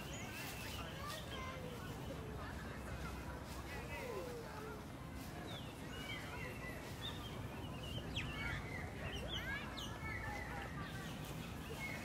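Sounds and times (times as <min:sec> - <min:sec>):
low background noise: 0:00.0 - 0:12.0
birds chirping: 0:05.2 - 0:12.0.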